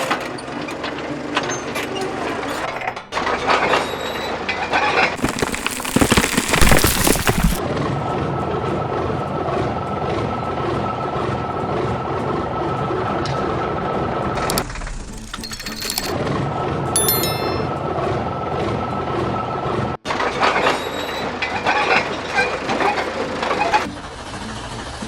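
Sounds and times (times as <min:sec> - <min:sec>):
heavy vehicle engine clattering: 0:20.1 - 0:24.9.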